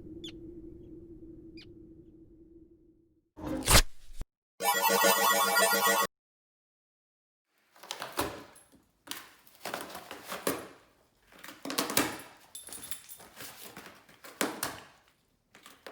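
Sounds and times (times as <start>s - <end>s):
dog rustling and scuffling: 7.8s - 15.9s
metal collar tags jingling: 11.9s - 13.8s.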